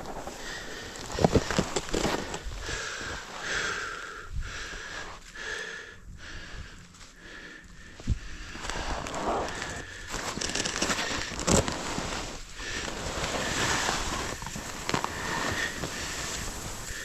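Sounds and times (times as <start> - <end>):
person breathing hard: 0.0 - 17.0.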